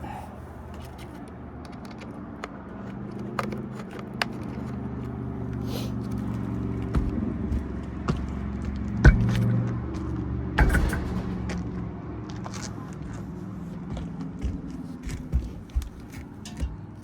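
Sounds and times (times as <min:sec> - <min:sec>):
low mechanical hum: 0:02.6 - 0:17.0
loud knock: 0:09.0 - 0:09.6, 0:10.6 - 0:12.0.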